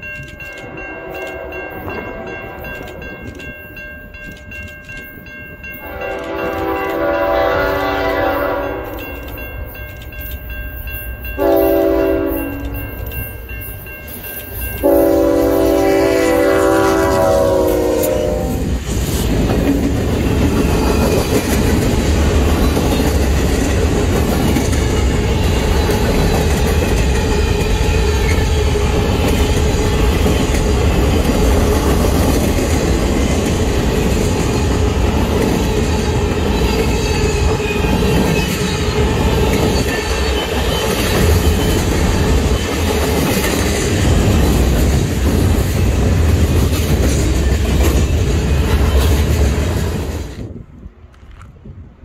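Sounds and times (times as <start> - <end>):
train wheels rumbling and clacking: 0.0 - 51.9
locomotive horn chord: 0.6 - 2.6, 5.8 - 9.2, 11.4 - 12.8, 14.8 - 18.7.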